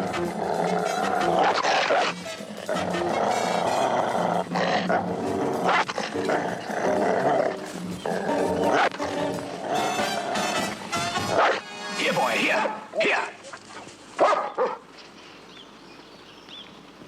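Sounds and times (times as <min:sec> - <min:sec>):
dog barking and growling: 0:00.0 - 0:11.7, 0:12.6 - 0:14.9
music: 0:00.0 - 0:13.0.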